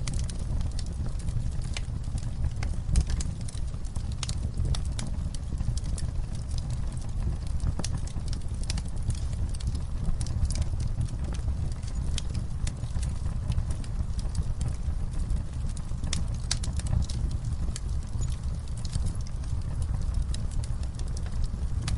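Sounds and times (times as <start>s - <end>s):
burning wood crackling and popping: 0.0s - 21.9s
rush of campfire flames: 0.0s - 21.9s.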